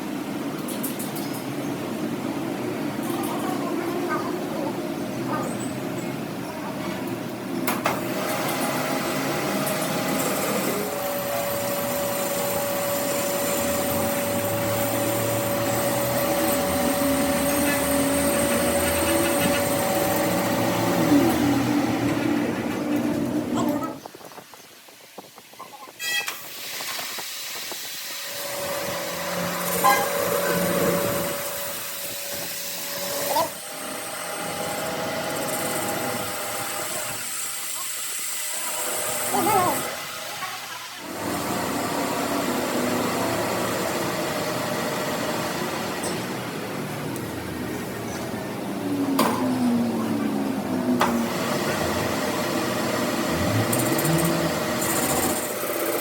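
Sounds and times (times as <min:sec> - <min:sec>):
workshop machine running: 0:00.0 - 0:24.1, 0:26.3 - 0:56.0
steady machine whine: 0:07.4 - 0:24.0, 0:41.0 - 0:56.0.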